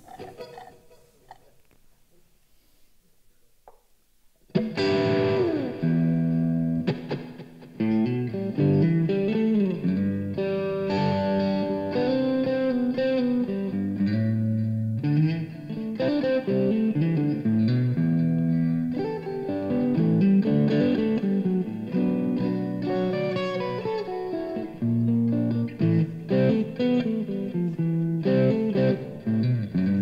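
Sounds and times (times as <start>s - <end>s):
electric guitar slide: 4.6s - 30.0s.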